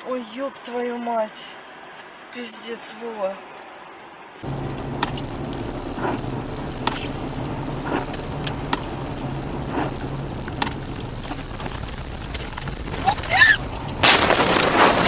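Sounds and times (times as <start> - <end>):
car engine and road hum: 3.4 - 15.0
sharp clicks: 4.8 - 7.2.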